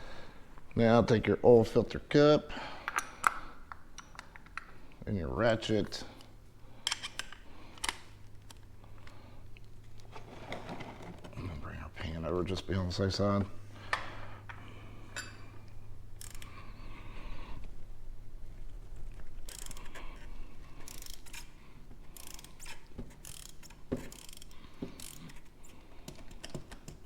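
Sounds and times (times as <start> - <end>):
steady low hum: 0.0 - 22.8
hand ratchet clicking: 16.2 - 16.6, 19.5 - 21.5, 22.1 - 25.5.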